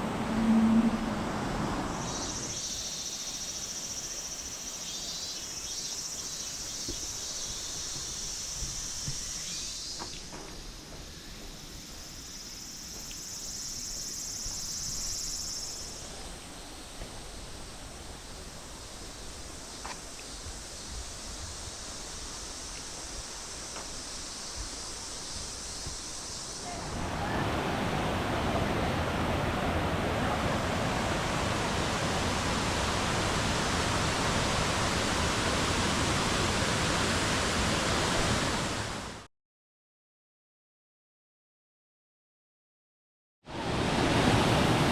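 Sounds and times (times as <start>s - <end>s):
insects buzzing: 0.0s - 29.6s
waterfall rushing: 26.2s - 39.2s, 43.5s - 44.9s.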